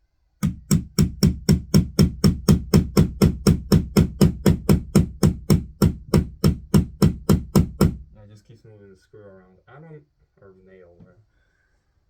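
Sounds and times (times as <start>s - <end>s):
hammer blows on nail: 0.4s - 8.1s.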